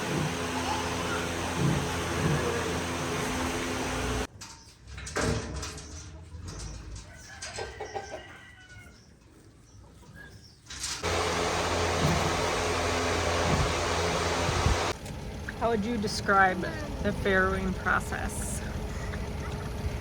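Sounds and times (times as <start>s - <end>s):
steady mechanical hum: 0.0s - 4.3s, 11.0s - 20.0s
soft farm animal calls: 7.0s - 10.4s.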